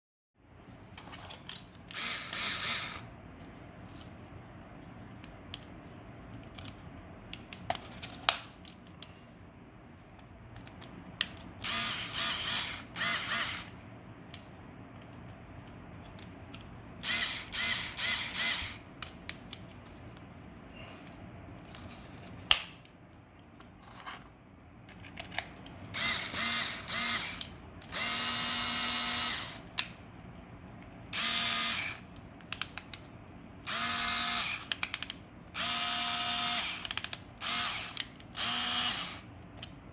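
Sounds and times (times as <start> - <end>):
mini electric drill whining: 1.9 - 3.1, 11.6 - 13.8, 17.0 - 18.8, 26.0 - 29.6, 31.1 - 32.1, 33.7 - 34.7, 35.6 - 39.3.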